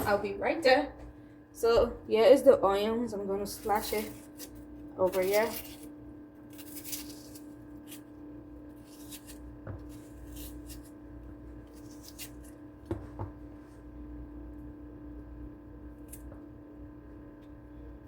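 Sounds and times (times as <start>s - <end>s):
steady low hum: 0.0s - 18.0s
knife cutting onion: 3.5s - 13.1s.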